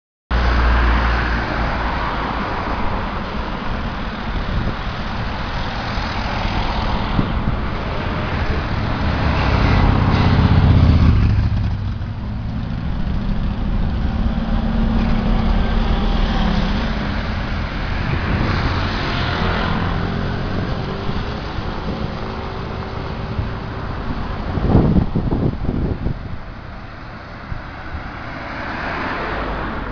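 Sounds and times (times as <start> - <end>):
road noise: 0.3 - 29.9
bus diesel engine running: 6.8 - 27.0.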